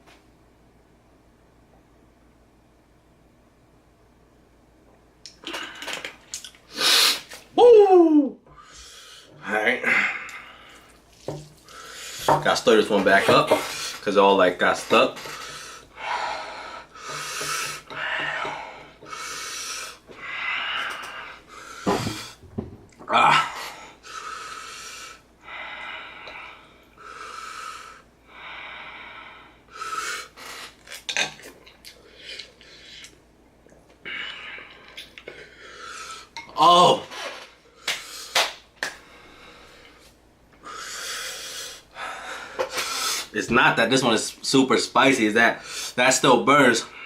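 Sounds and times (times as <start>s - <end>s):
person breathing hard: 8.5s - 11.0s, 11.6s - 12.4s, 15.2s - 22.4s, 23.3s - 30.8s, 34.0s - 36.4s, 37.8s - 43.3s.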